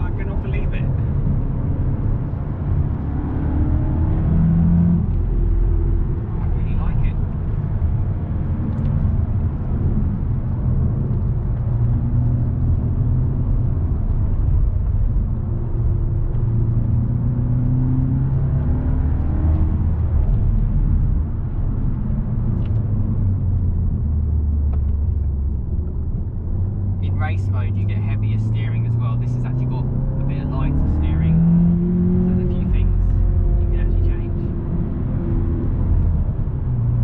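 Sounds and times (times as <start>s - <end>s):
car engine droning: 0.0s - 37.0s
road rumble: 0.0s - 37.0s.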